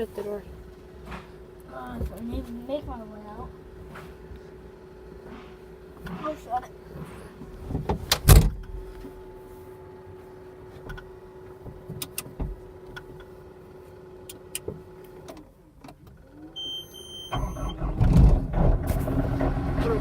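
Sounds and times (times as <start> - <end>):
cab door slamming: 7.7 - 8.8
diesel engine starting: 15.2 - 20.0
beep: 16.6 - 17.8.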